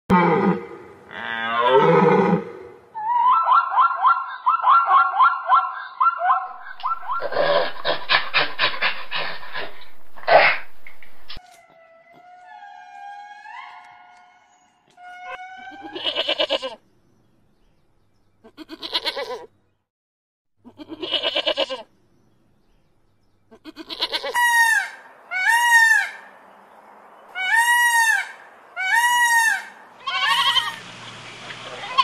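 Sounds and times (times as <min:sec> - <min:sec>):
peacock calling: 0:01.6 - 0:16.8, 0:23.5 - 0:26.4, 0:27.3 - 0:32.0
shaky bleating calls: 0:14.9 - 0:16.8, 0:18.4 - 0:19.5, 0:20.6 - 0:21.9, 0:23.5 - 0:24.8, 0:28.8 - 0:30.8, 0:31.8 - 0:32.0.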